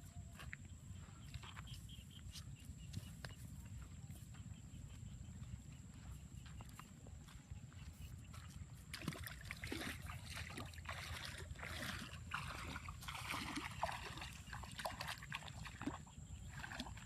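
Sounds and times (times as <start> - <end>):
water splashing and sloshing: 5.4 - 17.0.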